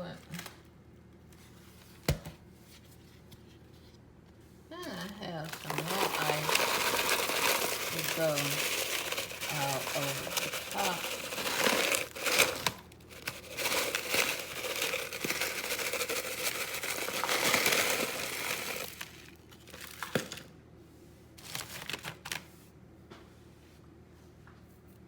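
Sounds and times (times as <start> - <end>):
ice rustling and rattling in a bowl: 4.8 - 20.5.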